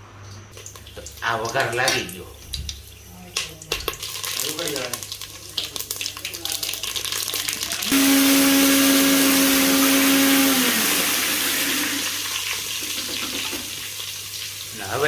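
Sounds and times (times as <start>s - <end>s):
spices crackling in hot oil: 0.3s - 10.4s.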